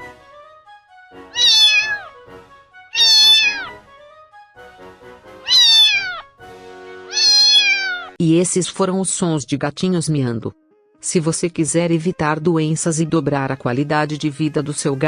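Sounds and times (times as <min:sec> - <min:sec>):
faint background music: 0:01.3 - 0:02.1, 0:02.9 - 0:03.8, 0:07.1 - 0:15.0
kitten meowing: 0:01.3 - 0:02.2, 0:02.9 - 0:03.8, 0:05.4 - 0:06.3, 0:07.1 - 0:08.2.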